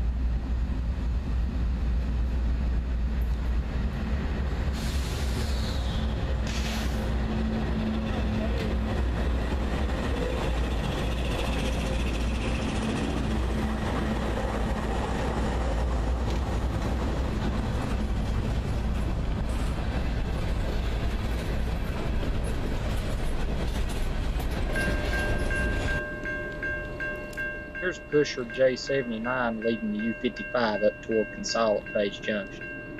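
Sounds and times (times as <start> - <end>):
freight train wheels rumbling on rail: 0.0 - 32.9
chime-like tones: 24.8 - 32.9.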